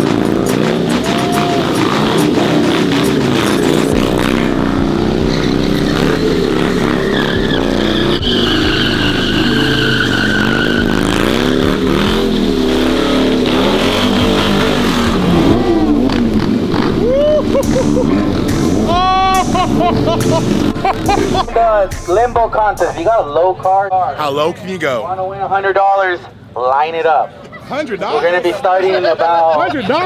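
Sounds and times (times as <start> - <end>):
car engine revving: 0.0 - 24.2
tires squealing: 0.0 - 24.2.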